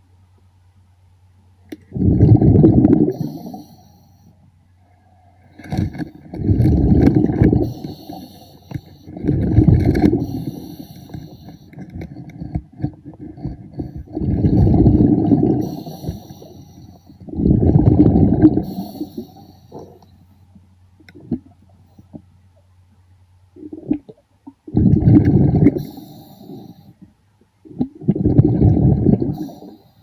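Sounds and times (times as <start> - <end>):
exhaled bubbles underwater: 1.8 - 3.8, 5.5 - 20.0, 23.6 - 26.8, 27.7 - 29.8
faint crackling and clicking: 5.4 - 17.3, 18.4 - 29.9.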